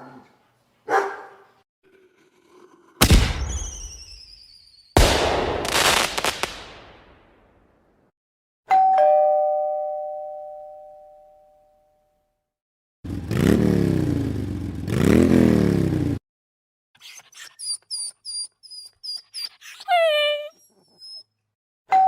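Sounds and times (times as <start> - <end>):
two-tone doorbell chime: 8.7 - 12.1.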